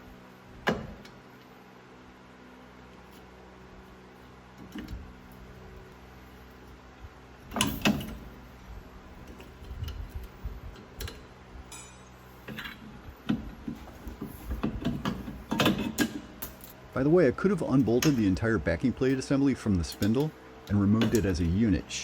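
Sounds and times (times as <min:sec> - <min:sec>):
metal brake parts clanking: 0:11.7 - 0:12.7.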